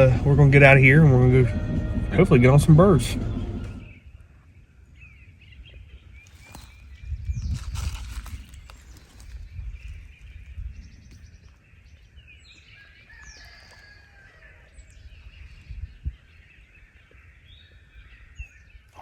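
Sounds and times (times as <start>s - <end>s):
low rumble: 0.0s - 4.0s
songbirds chirping and singing: 0.0s - 19.0s.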